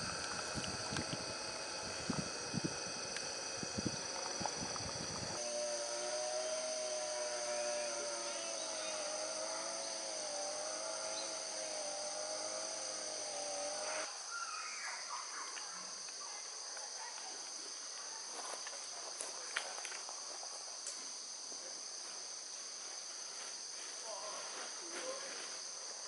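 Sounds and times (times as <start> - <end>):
low wavering droning hum: 0.0 - 14.1
insects chorus: 0.0 - 26.0.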